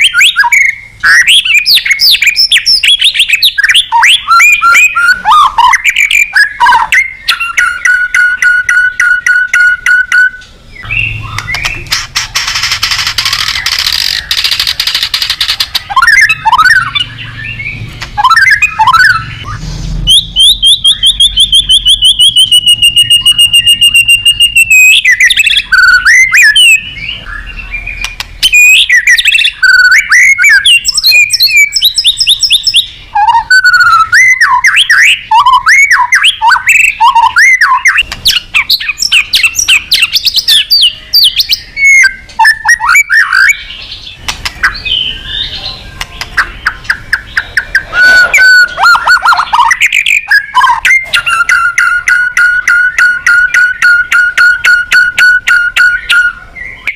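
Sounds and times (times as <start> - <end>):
bird singing varied song: 0.0 - 56.9.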